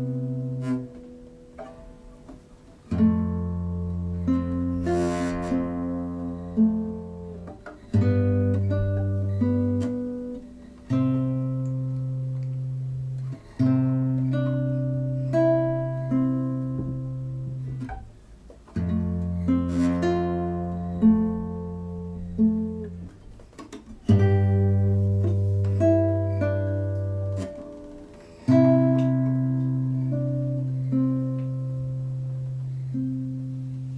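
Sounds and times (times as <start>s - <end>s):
low sustained bass notes: 0.0s - 2.3s, 24.0s - 33.9s
acoustic guitar chords: 0.0s - 33.9s.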